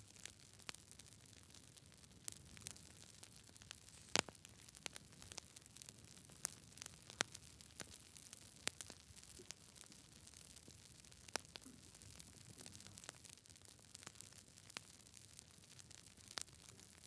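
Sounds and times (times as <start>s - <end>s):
faint steady hiss: 0.0s - 17.0s
wood fire crackling: 0.0s - 17.0s.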